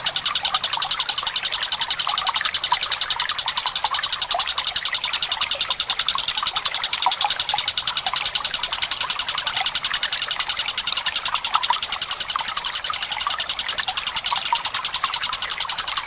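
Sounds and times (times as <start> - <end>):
water trickling: 0.0 - 16.0.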